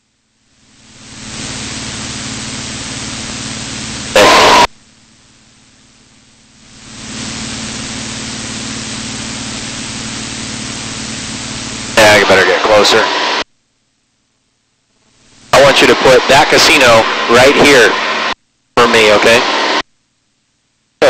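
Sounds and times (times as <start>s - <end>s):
aircraft engine hum: 0.0s - 13.4s
loud burst of noise: 0.5s - 4.8s, 6.6s - 13.5s, 15.4s - 19.9s
intercom hiss: 0.7s - 4.7s, 6.6s - 13.5s, 15.4s - 19.8s.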